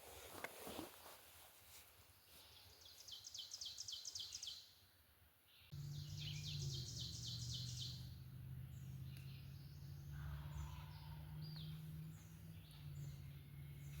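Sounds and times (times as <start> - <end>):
songbird singing high notes: 5.7 - 14.0.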